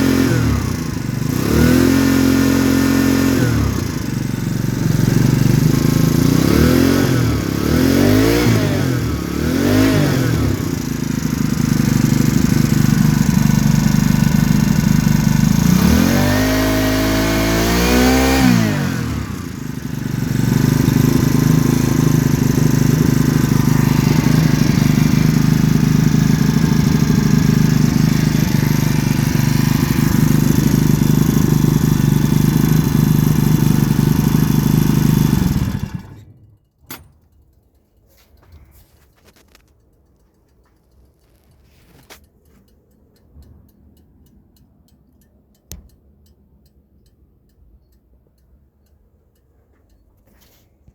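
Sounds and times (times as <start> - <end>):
motorized bicycle engine revving: 0.0 - 36.5.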